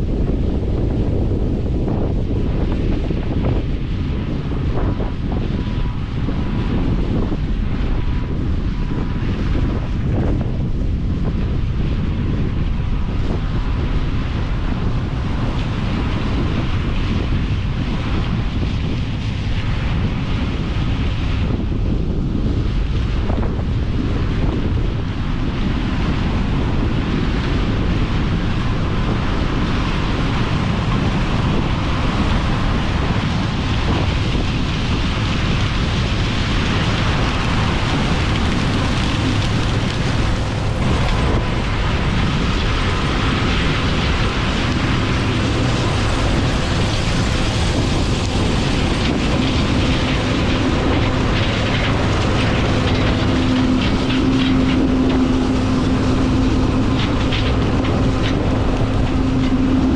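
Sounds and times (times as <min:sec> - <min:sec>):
harvest machinery rumbling: 0:00.0 - 0:59.9
steady hum: 0:00.0 - 0:59.9.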